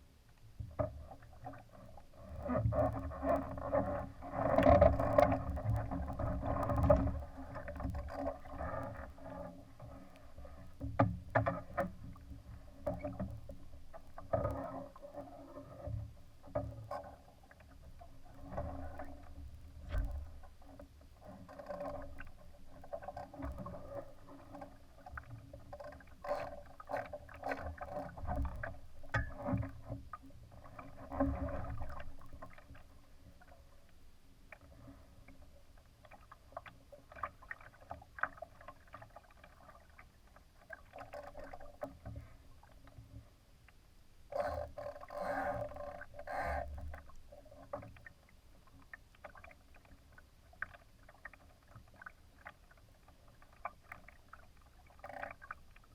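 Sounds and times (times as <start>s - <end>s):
water slapping against a hull: 0.6s - 55.9s.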